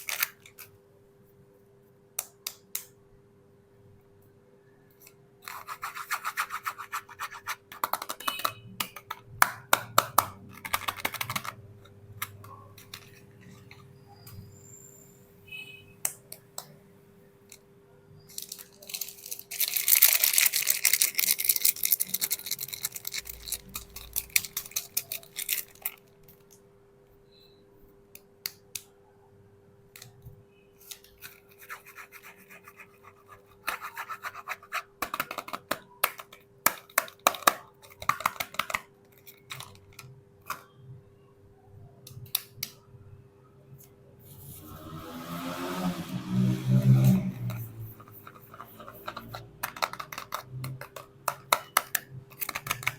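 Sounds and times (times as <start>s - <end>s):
packaging crinkling and scratching: 18.4s - 26.1s.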